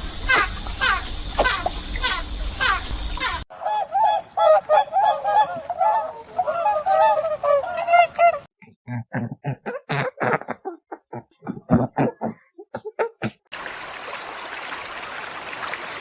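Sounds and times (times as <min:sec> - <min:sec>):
geese honking: 0:03.6 - 0:08.5.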